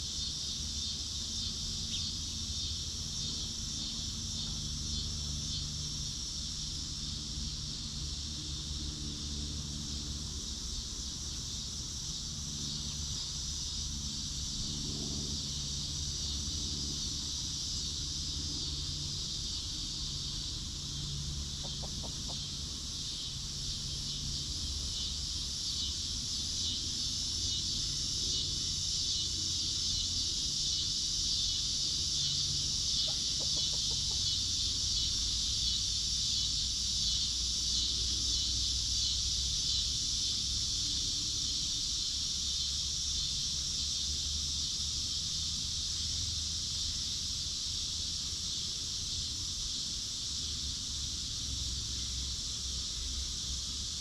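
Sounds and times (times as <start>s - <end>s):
high-pitched insect chorus: 0.0s - 54.0s
hens clucking: 21.6s - 22.4s, 33.0s - 34.2s.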